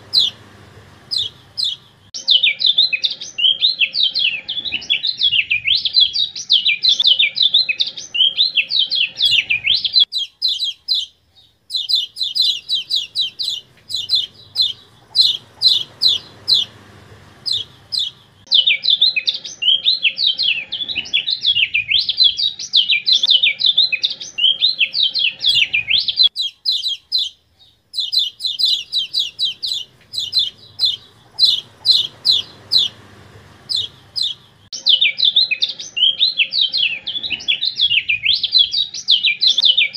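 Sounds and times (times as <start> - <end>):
faint low hum: 0.0 - 2.2, 8.2 - 18.6, 24.4 - 34.7
bird singing high chirps: 0.0 - 39.9.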